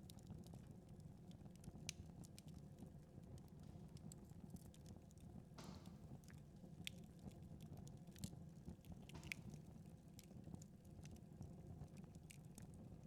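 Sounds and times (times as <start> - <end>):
wood fire crackling: 5.6 - 6.4, 8.9 - 10.3.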